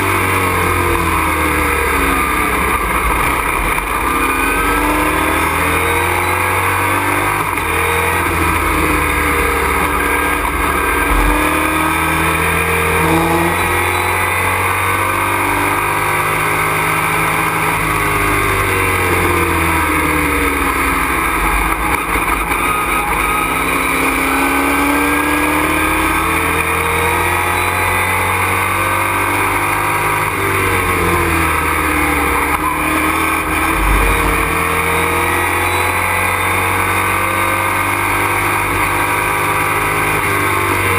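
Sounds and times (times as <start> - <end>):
race truck engine revving: 0.0 - 40.9.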